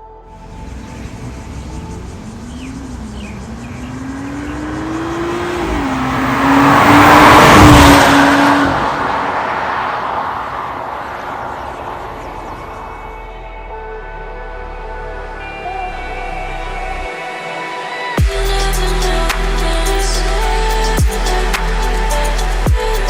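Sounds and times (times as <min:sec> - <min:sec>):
car passing by: 0:00.3 - 0:13.3
car engine accelerating: 0:00.3 - 0:13.8.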